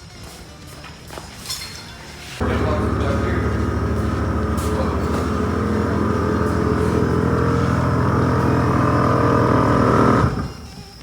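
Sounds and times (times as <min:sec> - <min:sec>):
car engine running: 0:02.4 - 0:10.8.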